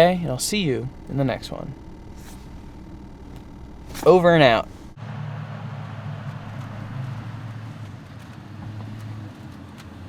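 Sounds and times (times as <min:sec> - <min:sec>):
vehicle hum with hiss: 0:00.0 - 0:10.0.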